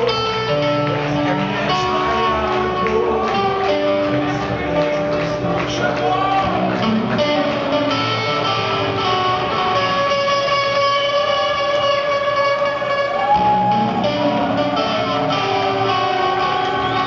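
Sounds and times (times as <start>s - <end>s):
rock band with electric guitars: 0.0s - 17.0s.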